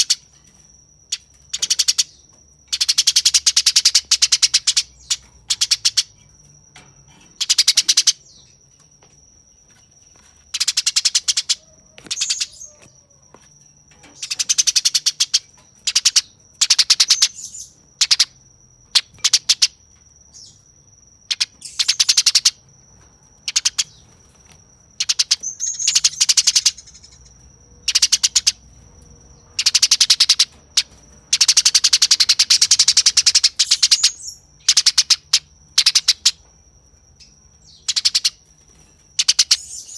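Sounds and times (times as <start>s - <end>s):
sparrow harsh rapid chattering: 2.7s - 6.1s, 7.3s - 8.3s, 10.5s - 12.8s, 14.2s - 18.3s, 21.3s - 22.6s, 23.5s - 24.0s, 25.0s - 27.2s, 27.8s - 28.6s, 29.5s - 36.4s, 37.7s - 38.4s, 39.2s - 39.9s.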